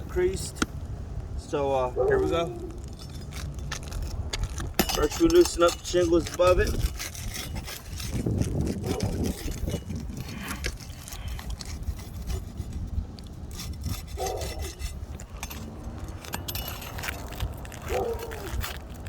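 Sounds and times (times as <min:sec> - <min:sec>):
tool scraping roof shingles: 0:01.8 - 0:19.0.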